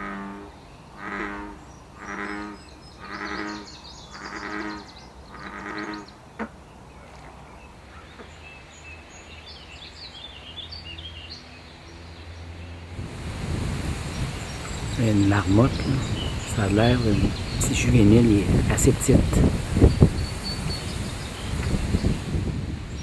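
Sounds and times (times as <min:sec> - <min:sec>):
bullfrog deep droning calls: 0:00.0 - 0:06.6
faint birds chirping: 0:00.0 - 0:23.0.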